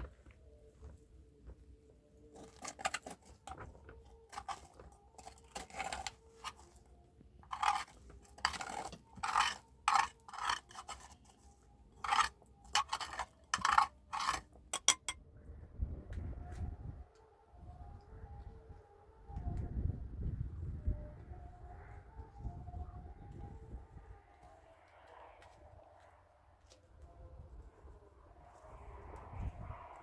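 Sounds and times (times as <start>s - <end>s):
tool scraping a surface: 2.4s - 15.2s.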